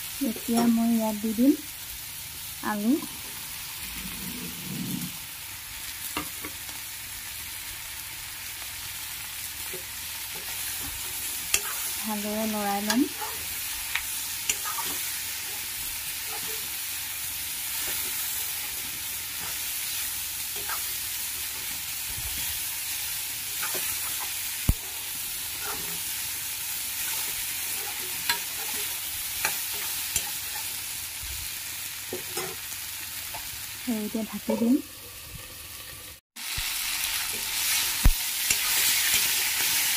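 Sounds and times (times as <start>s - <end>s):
meat sizzling in hot oil: 0.0s - 39.9s
spatula scraping pan: 9.7s - 12.0s, 12.7s - 16.8s, 17.6s - 22.6s, 23.5s - 26.2s, 27.0s - 30.8s.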